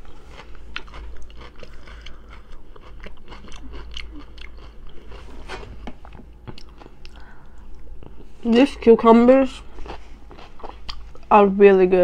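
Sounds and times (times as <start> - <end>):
crunchy chewing of cucumber: 0.0 - 5.4, 9.5 - 11.3.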